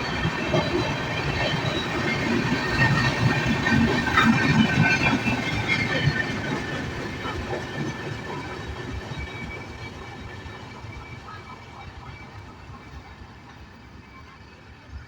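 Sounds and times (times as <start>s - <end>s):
train wheels clattering over rails: 0.0s - 14.1s.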